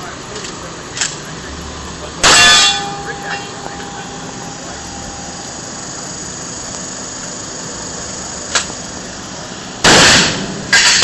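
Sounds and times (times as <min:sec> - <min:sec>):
steady hiss: 0:00.0 - 0:11.0
loud gunshot: 0:09.8 - 0:11.0.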